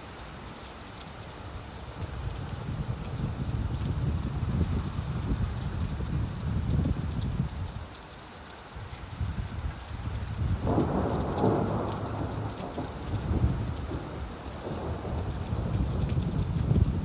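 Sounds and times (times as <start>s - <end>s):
steady rain: 0.0s - 17.0s
rolling thunder: 10.2s - 17.0s.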